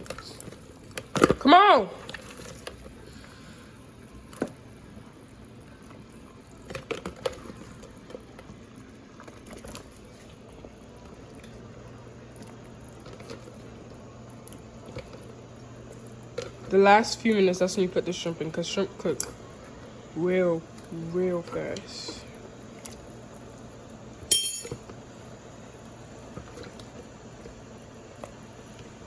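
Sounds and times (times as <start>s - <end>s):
low steady hum: 0.0s - 29.0s
clinks and splashes: 24.3s - 24.9s.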